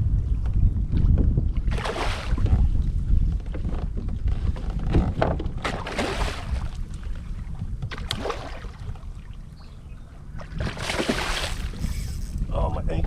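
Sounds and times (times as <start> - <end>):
wind buffeting microphone: 0.0 - 13.0
water splashing: 1.7 - 2.6, 5.6 - 7.0, 7.9 - 9.4, 10.4 - 11.9.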